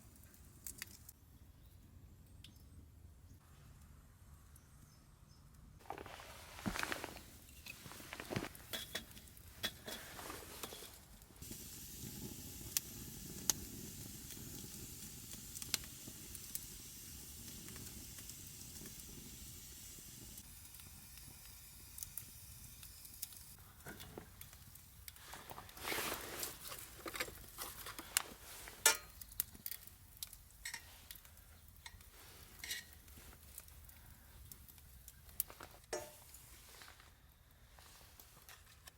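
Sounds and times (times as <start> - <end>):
food sizzling in a frying pan: 8.6 - 23.6.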